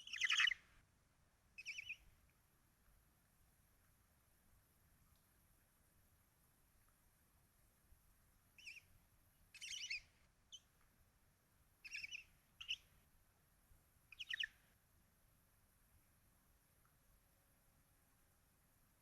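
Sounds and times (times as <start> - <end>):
barn owls chittering: 0.0 - 0.6, 1.6 - 2.0, 8.6 - 8.8, 9.6 - 10.1, 11.8 - 12.8, 14.2 - 14.6.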